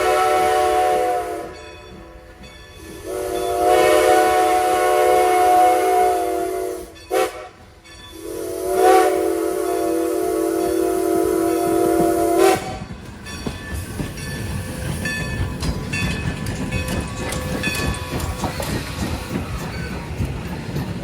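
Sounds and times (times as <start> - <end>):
steam locomotive whistle: 0.0 - 1.9, 2.8 - 12.9
train rumbling and clanking on rails: 0.0 - 21.0.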